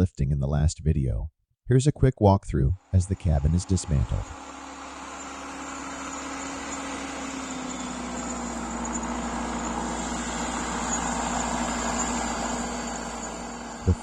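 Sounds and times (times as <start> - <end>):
diesel engine droning: 2.5 - 14.0.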